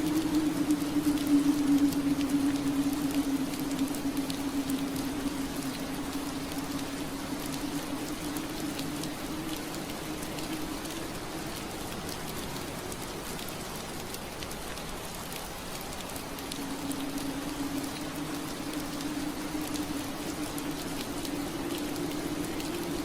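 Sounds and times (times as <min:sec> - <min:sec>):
soft rain on window glass: 0:00.0 - 0:23.0.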